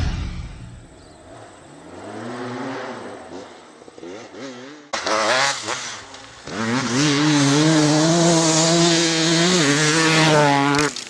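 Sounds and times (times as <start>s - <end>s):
two-stroke engine revving: 4.0s - 10.9s.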